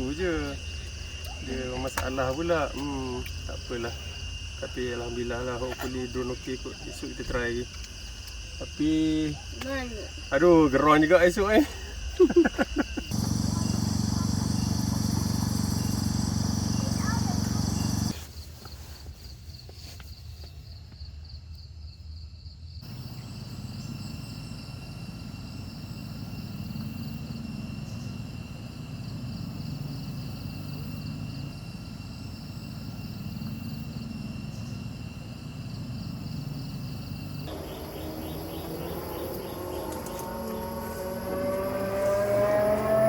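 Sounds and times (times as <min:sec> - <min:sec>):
insects trilling: 0:00.0 - 0:43.0
rising engine-like whine: 0:12.7 - 0:18.2, 0:22.9 - 0:43.0.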